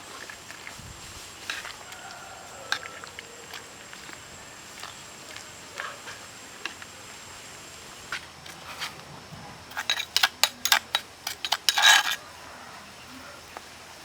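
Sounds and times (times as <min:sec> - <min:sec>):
sharp clinks and knocks: 0:09.7 - 0:12.2.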